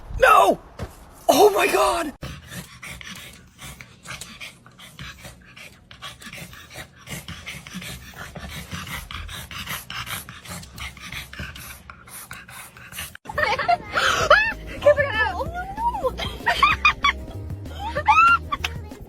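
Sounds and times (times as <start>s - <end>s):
dog panting: 2.2s - 13.2s.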